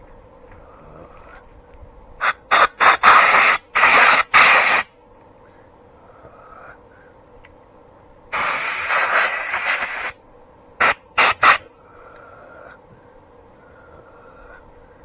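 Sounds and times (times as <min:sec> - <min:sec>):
pressurised spray hissing: 0:02.2 - 0:04.9, 0:08.3 - 0:10.2, 0:10.8 - 0:11.7.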